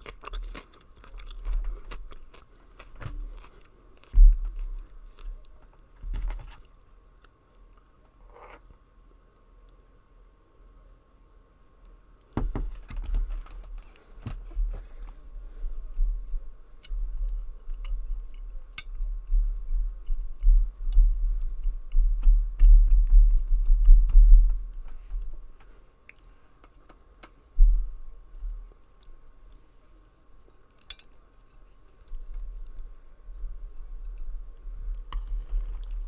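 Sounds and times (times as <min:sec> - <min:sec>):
person chewing noodles: 0:00.0 - 0:04.9, 0:16.9 - 0:23.9, 0:30.2 - 0:36.0.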